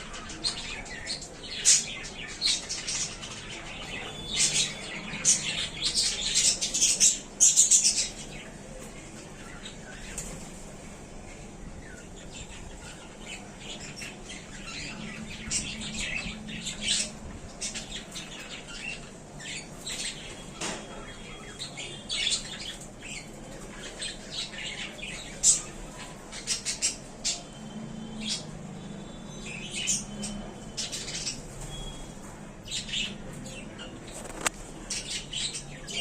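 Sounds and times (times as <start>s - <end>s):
budgerigars chirping and squawking: 11.9s - 28.5s
wings fluttering: 34.0s - 34.8s.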